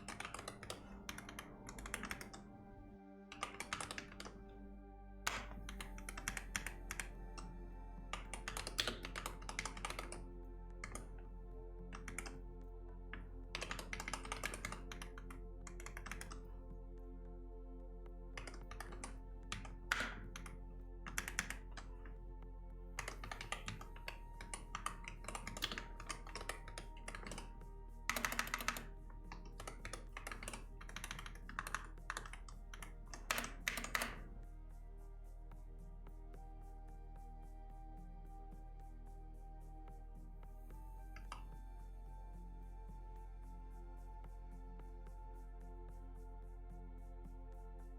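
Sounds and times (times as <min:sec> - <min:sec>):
background music: 0:00.0 - 0:47.9
typing on keyboard: 0:03.4 - 0:04.3, 0:05.3 - 0:07.1, 0:13.5 - 0:16.4, 0:21.1 - 0:21.9, 0:23.0 - 0:27.5, 0:28.1 - 0:34.2.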